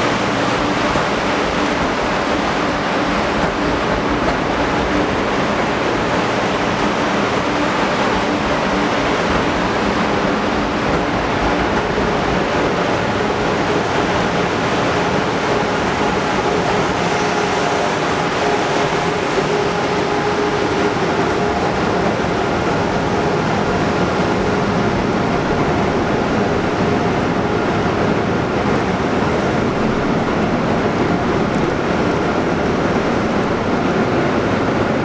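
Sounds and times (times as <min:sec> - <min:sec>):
train wheels rushing on rail: 0:00.0 - 0:35.0.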